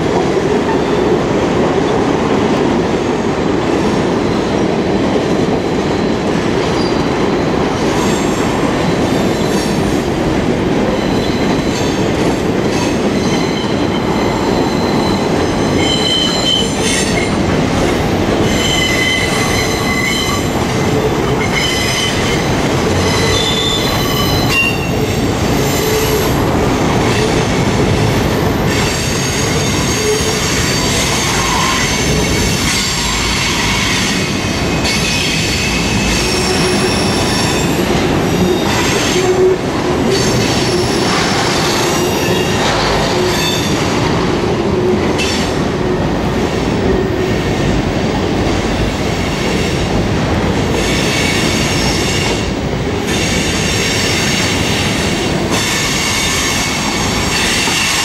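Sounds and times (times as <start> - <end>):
steel wheels squealing on rails: 5.6 - 9.9, 10.8 - 17.8, 18.4 - 46.1, 50.7 - 58.0.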